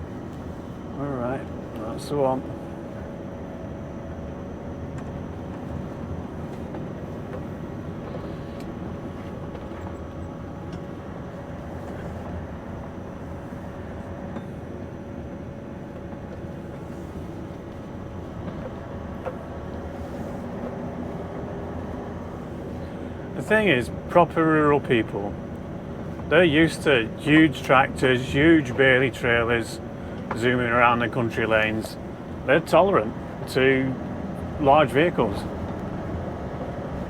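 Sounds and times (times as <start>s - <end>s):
road noise inside cab: 0.0s - 37.0s
truck engine running: 15.6s - 37.0s.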